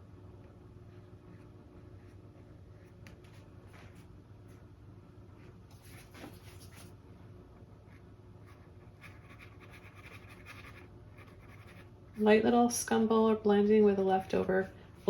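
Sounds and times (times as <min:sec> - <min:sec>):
faint low hum: 0:00.0 - 0:15.0
paintbrush scratching on canvas: 0:08.5 - 0:11.9.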